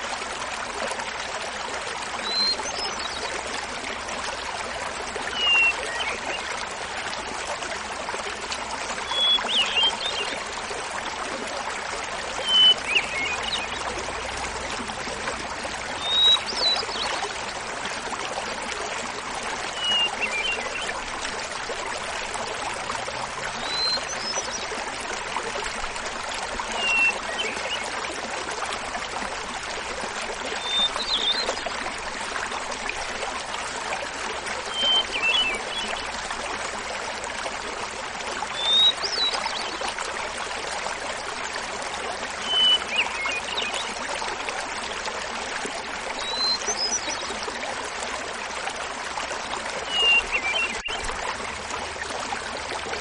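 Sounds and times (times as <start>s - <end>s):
waterfall babbling: 2.3s - 53.0s.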